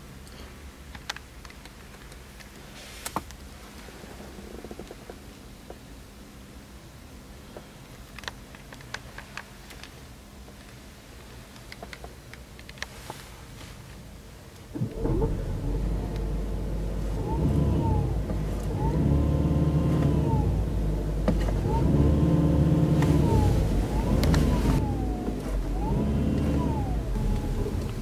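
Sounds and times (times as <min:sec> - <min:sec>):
car engine starting and revving: 0:14.7 - 0:28.0.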